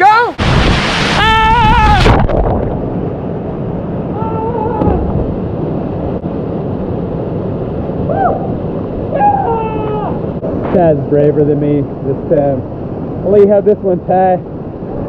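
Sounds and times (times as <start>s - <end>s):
waterfall rushing into pond: 0.3s - 2.3s
faint shouts: 9.1s - 10.2s.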